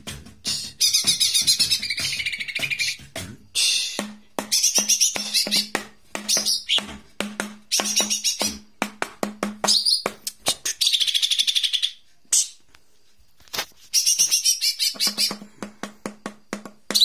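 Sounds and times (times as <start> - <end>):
bird chirps and twitters: 0.5 - 3.0, 4.5 - 6.9, 7.7 - 8.6, 9.6 - 12.6, 13.9 - 15.4.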